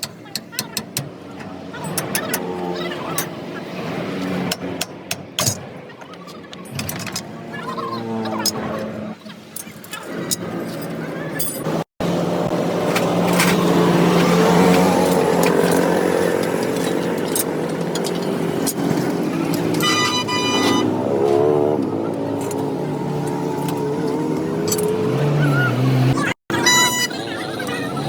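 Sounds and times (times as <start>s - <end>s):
short high-pitched beep: 26.5s - 27.2s.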